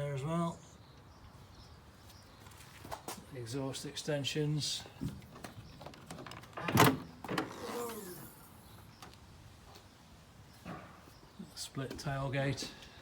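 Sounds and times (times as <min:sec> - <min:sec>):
tailgate whirring with hiss: 0:06.6 - 0:08.6.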